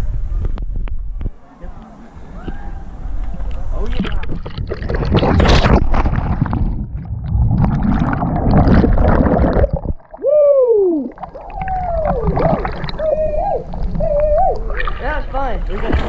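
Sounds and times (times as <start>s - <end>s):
water splashing and sloshing: 3.3s - 10.3s, 11.0s - 16.0s
person whooping: 10.2s - 14.8s.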